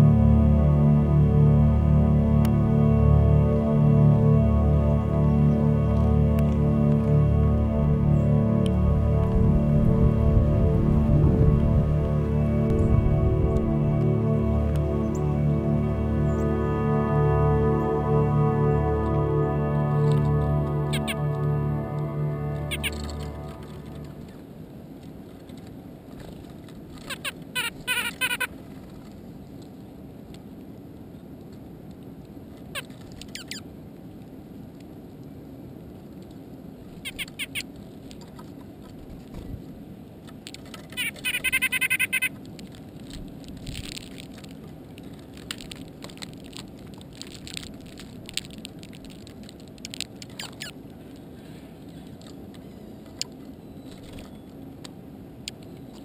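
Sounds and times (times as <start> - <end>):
steady low hum: 0.0 - 27.9
birds calling in harsh bursts: 20.8 - 21.3, 22.6 - 23.9, 27.1 - 28.5, 32.8 - 33.6, 37.1 - 37.7, 41.0 - 42.4, 50.3 - 50.8.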